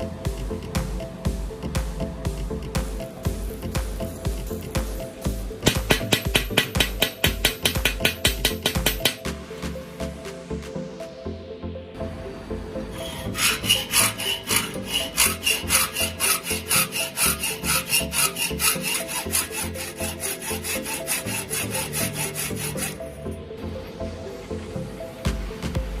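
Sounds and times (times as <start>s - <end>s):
hacksaw blade cutting wood: 5.6s - 9.2s, 13.0s - 23.1s.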